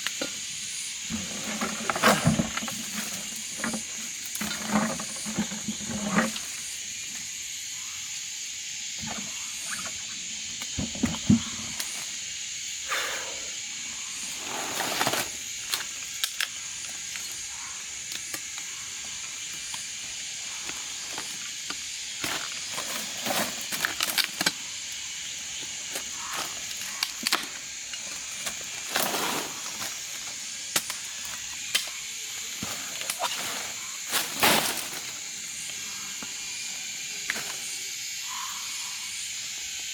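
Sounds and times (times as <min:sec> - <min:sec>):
high-pitched insect drone: 0:00.0 - 0:39.9
handling knocks and rustles: 0:01.0 - 0:06.8, 0:21.0 - 0:24.6, 0:25.9 - 0:31.4, 0:32.6 - 0:35.7.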